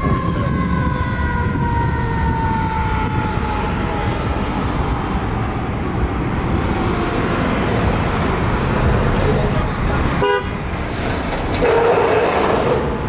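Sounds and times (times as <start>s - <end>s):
fire truck siren winding down: 0.0s - 5.5s
truck engine rumble: 0.0s - 13.0s.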